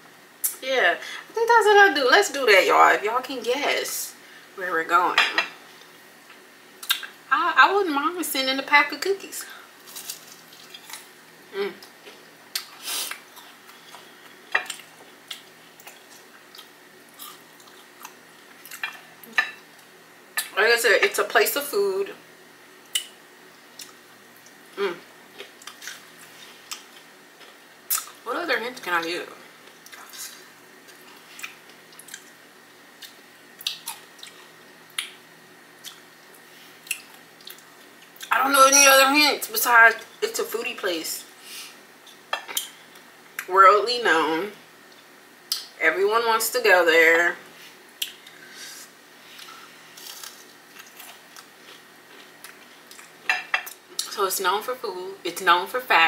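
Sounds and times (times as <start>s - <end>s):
crunchy food chewing: 11.8s - 19.0s, 49.3s - 53.3s
crunchy chewing: 49.3s - 53.2s.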